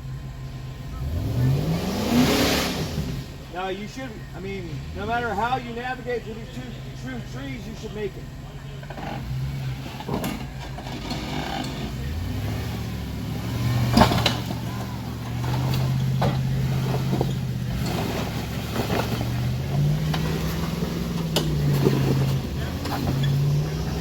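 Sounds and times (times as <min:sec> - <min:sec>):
engine running at low revs: 0:00.0 - 0:24.0
sharp knocks and clunks: 0:13.7 - 0:23.8.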